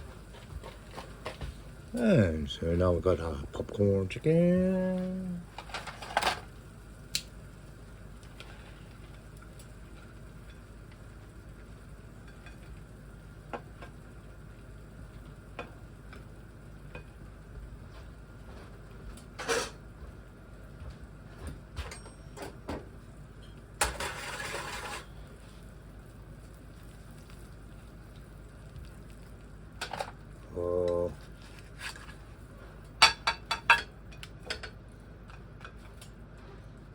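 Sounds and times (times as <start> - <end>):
utensils clinking against pans: 19.4 - 19.8, 33.0 - 34.8.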